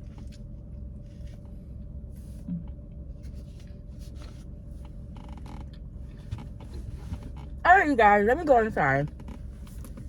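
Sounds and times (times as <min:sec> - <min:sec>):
car interior low rumble: 0:00.0 - 0:10.0.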